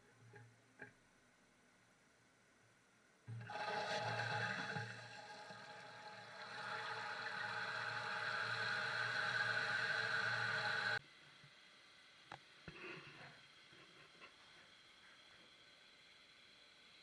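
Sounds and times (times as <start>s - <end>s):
toilet flushing: 3.3s - 11.0s.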